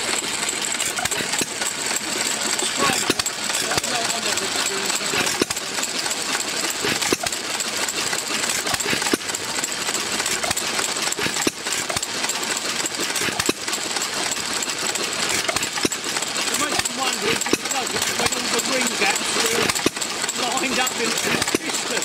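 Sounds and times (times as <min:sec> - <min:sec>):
stationary engine clattering: 0:00.0 - 0:22.0.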